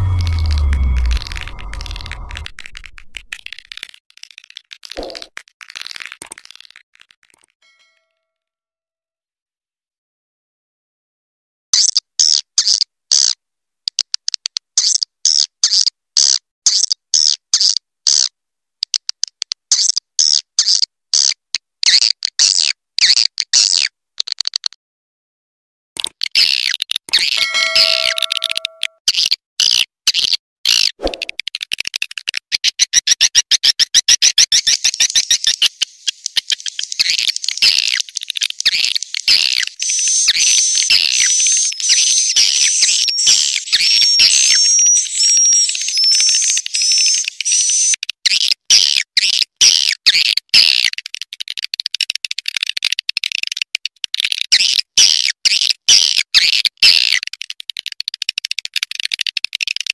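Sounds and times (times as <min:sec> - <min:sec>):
high whistled notes: 0:27.4 - 0:29.0, 0:38.7 - 0:48.0.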